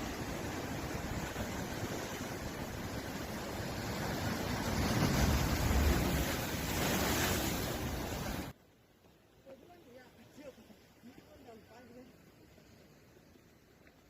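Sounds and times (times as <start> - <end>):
waves breaking: 0.0 - 8.6.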